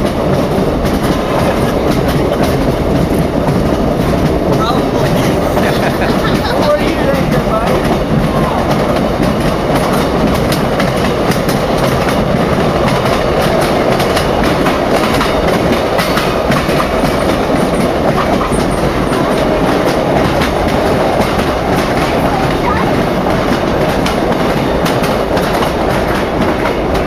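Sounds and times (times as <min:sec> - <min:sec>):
passenger train rumble: 0:00.0 - 0:27.0
wheels clicking over rail joints: 0:00.0 - 0:27.0.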